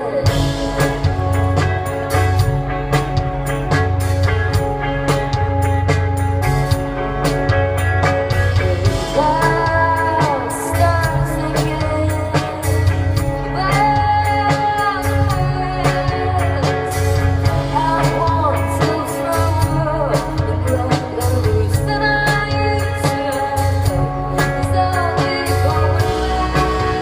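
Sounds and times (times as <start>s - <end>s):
woman singing: 0.0s - 1.8s, 8.3s - 27.0s
drums: 0.0s - 27.0s
guitar: 0.0s - 27.0s
pulsing bass line: 0.0s - 27.0s.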